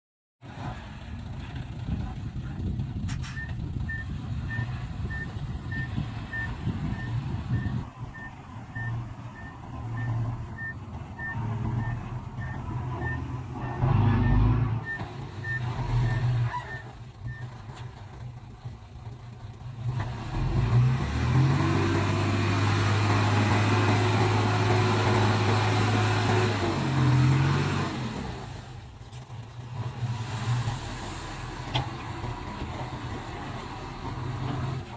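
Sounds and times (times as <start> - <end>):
reversing alarm beeping: 3.4 - 16.8.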